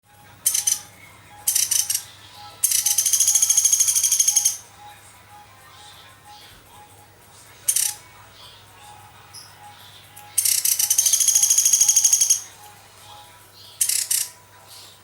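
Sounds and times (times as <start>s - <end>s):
woodpecker rattling trills: 2.6s - 4.6s, 10.4s - 12.5s, 13.8s - 14.4s.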